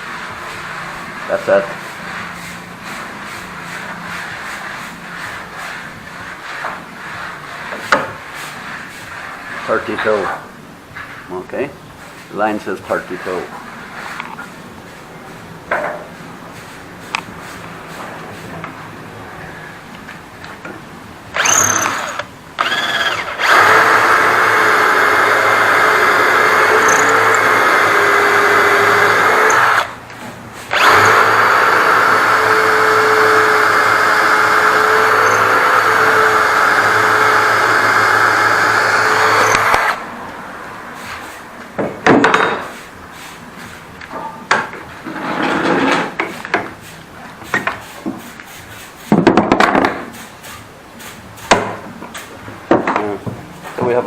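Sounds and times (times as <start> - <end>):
knocks of wood and tools: 7.7 - 8.2, 41.8 - 42.8, 49.1 - 50.2, 51.5 - 53.8
cordless drill boring into wood: 21.4 - 29.9, 30.7 - 40.0.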